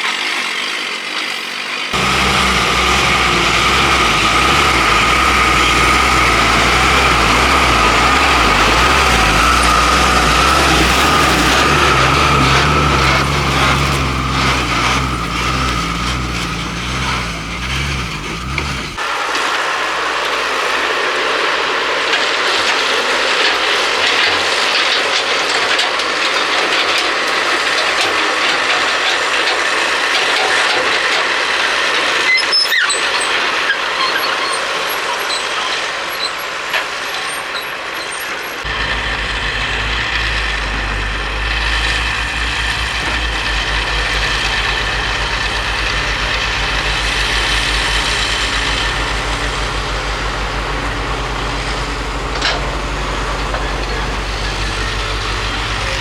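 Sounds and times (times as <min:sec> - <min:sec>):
deep diesel engine hum: 0:00.6 - 0:20.8, 0:31.4 - 0:56.0
hissing noise: 0:02.0 - 0:22.0.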